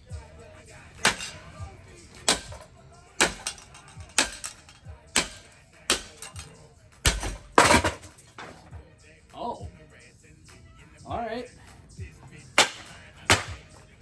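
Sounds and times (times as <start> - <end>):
heavy blows smashing fan: 0.8 - 8.8, 12.3 - 14.0.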